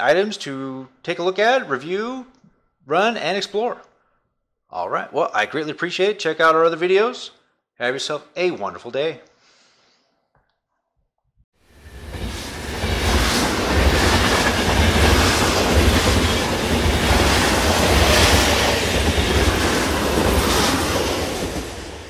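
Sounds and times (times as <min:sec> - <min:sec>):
train rumbling on rails: 0:11.7 - 0:22.0.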